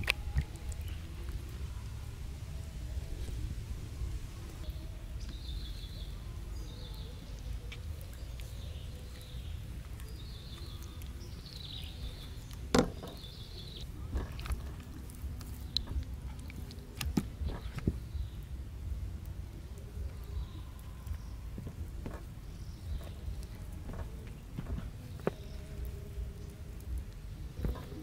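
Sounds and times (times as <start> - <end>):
low outdoor rumble: 0.0 - 28.0
small bird chirping: 4.0 - 16.8.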